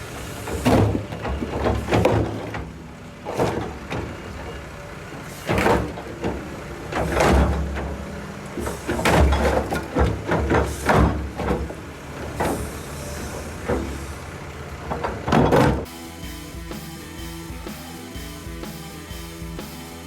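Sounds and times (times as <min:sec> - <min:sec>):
heavy engines rumbling: 0:00.0 - 0:20.0
bucket clanks and crashes: 0:00.2 - 0:04.5, 0:05.2 - 0:16.0.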